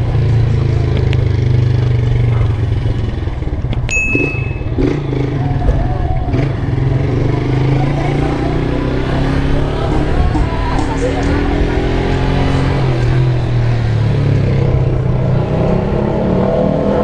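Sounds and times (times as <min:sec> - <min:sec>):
motorcycle engine running: 0:00.0 - 0:16.0
short high beep: 0:03.9 - 0:05.0.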